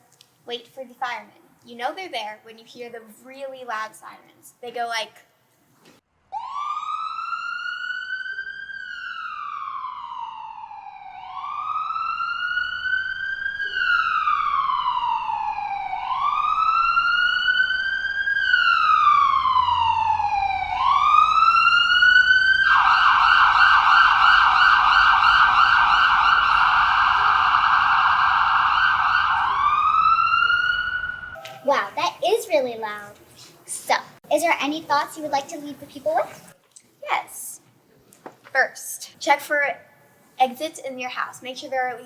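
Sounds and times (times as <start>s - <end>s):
fire truck siren wailing: 6.3s - 31.8s
fire truck siren yelp: 6.3s - 31.8s.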